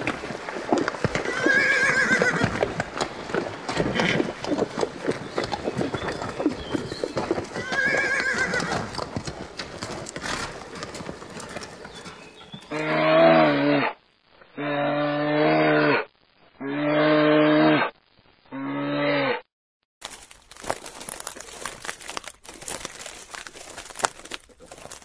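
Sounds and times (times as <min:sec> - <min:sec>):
horse whinny: 0:01.1 - 0:02.7, 0:07.4 - 0:09.0, 0:12.7 - 0:14.0.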